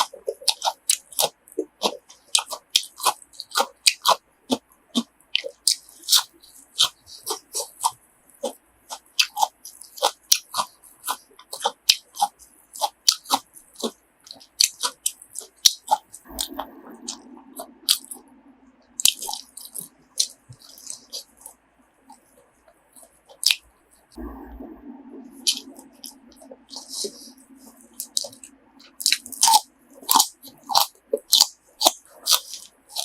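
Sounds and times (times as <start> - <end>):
moist mouth clicks: 0.0 - 33.0
person chewing: 0.0 - 33.0
low murmur: 16.2 - 21.1, 23.9 - 29.1.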